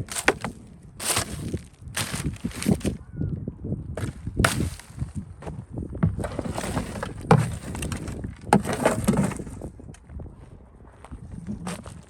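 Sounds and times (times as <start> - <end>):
scraping and rustling: 0.0 - 3.0, 4.0 - 9.7, 11.5 - 12.0.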